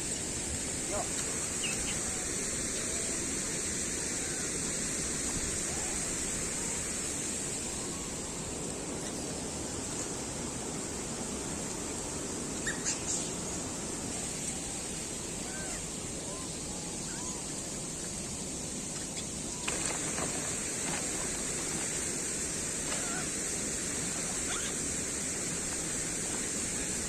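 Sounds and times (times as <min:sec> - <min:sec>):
high hiss: 0:00.0 - 0:27.0
faint chirps: 0:12.0 - 0:13.7, 0:14.3 - 0:20.1.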